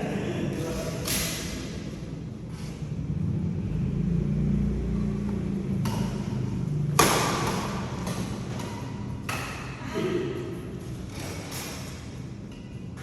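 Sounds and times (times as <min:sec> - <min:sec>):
low engine rumble: 0:00.0 - 0:11.2
badminton racket hitting shuttlecock: 0:05.7 - 0:09.9.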